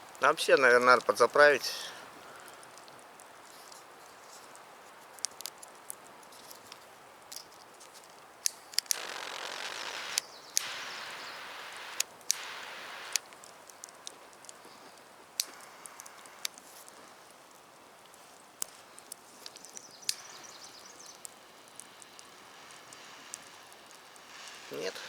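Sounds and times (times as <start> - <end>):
small clicks and ticks: 2.2 - 25.0
gas lighter hissing: 8.8 - 13.2, 20.1 - 25.0
lighter clicks: 10.1 - 13.2.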